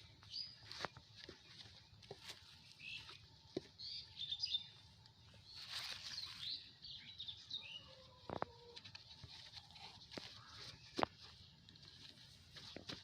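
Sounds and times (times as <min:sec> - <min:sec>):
small birds chirping: 0:00.0 - 0:13.0
rustle: 0:05.3 - 0:13.0.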